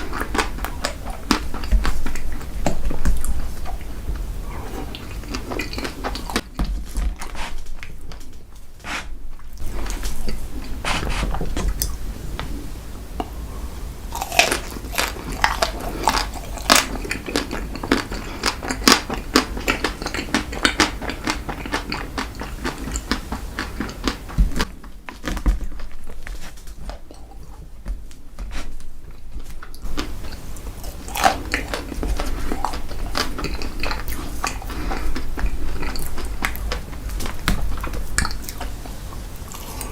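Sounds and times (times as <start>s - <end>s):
person biting and chewing: 0.0s - 6.6s, 14.1s - 27.6s, 29.6s - 39.9s.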